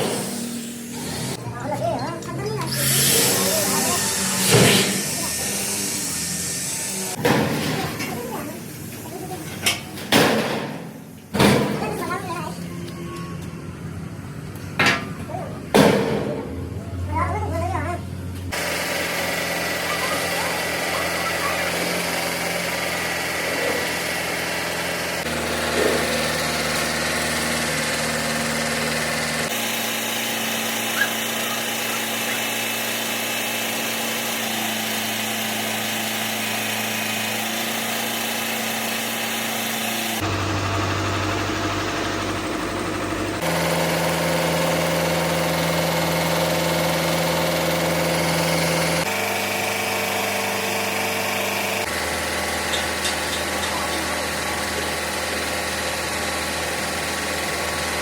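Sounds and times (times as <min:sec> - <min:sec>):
engine running: 0:00.0 - 0:58.0.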